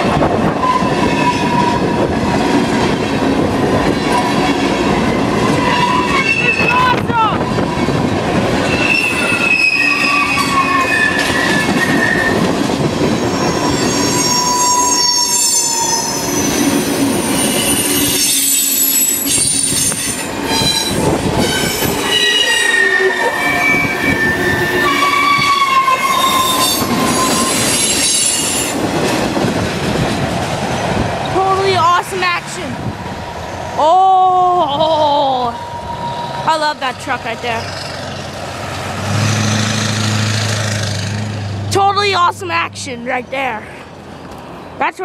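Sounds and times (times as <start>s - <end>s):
rumble of wheels on rail: 0.0s - 44.9s
wheels squealing: 5.0s - 28.9s.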